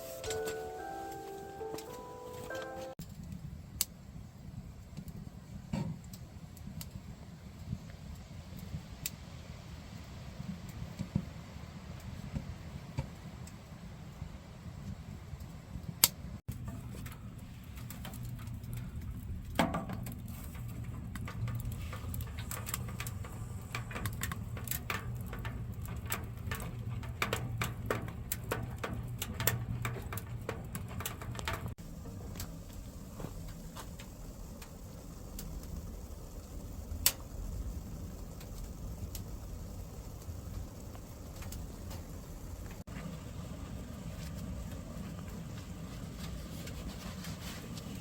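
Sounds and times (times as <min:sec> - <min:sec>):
firewood crackling and popping: 0:00.0 - 0:48.0
steady low hum: 0:16.4 - 0:48.0.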